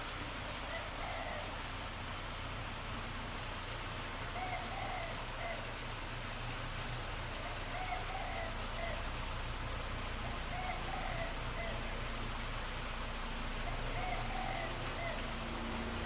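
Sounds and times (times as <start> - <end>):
steady background hiss: 0.0 - 16.0
dove cooing: 0.6 - 1.6, 4.3 - 5.7, 7.3 - 9.2, 10.2 - 12.2, 13.5 - 16.0.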